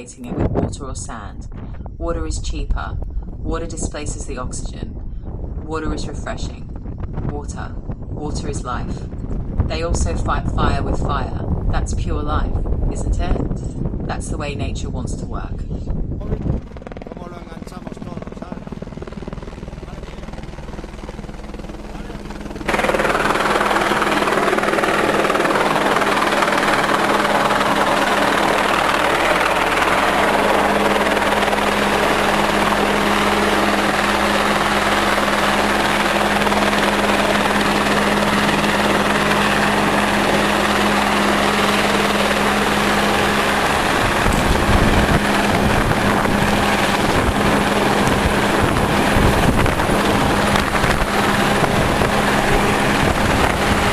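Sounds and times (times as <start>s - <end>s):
helicopter rotor and engine: 0.0s - 53.9s
wind buffeting microphone: 0.0s - 53.9s.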